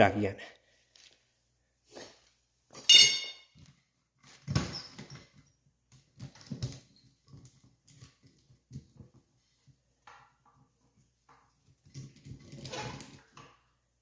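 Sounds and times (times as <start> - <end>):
metallic clang ringing: 2.8 - 3.5.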